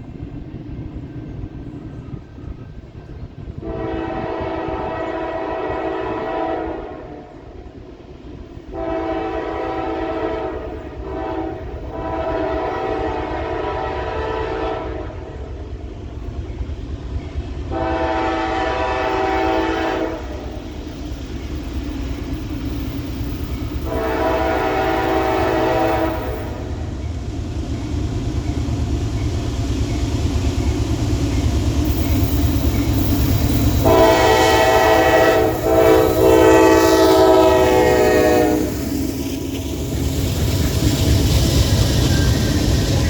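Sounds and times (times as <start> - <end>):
freight train rumbling: 0.0 - 43.0
locomotive horn blasts: 3.6 - 7.4, 8.7 - 15.3, 17.7 - 20.4, 23.8 - 26.8, 33.8 - 38.9.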